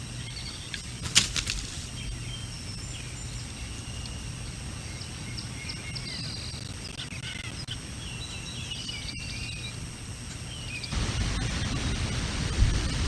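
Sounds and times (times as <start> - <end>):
birds chirping and warbling: 0.0 - 13.0
wind buffeting microphone: 10.9 - 13.0.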